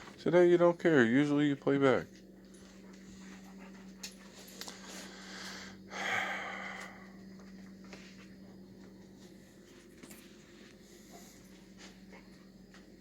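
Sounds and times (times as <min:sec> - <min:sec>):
steady low hum: 0:00.0 - 0:13.0
puppy snorting and breathing: 0:02.8 - 0:05.9.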